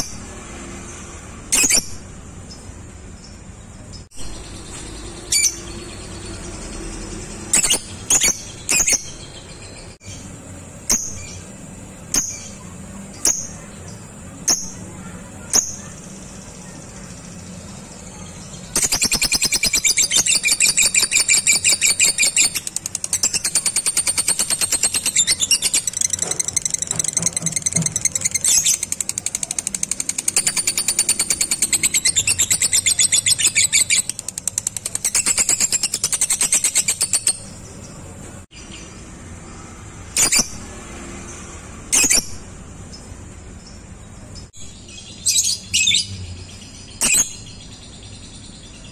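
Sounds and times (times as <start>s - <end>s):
lovebird chirps: 0.0s - 39.1s, 41.2s - 48.9s
high-pitched chattering trill: 18.7s - 37.5s.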